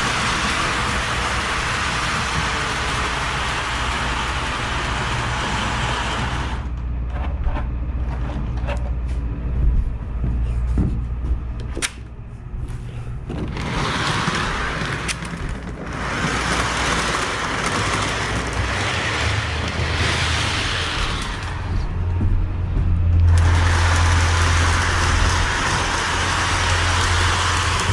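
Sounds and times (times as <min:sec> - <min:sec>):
model train rumbling: 0:00.0 - 0:06.9, 0:13.1 - 0:27.9.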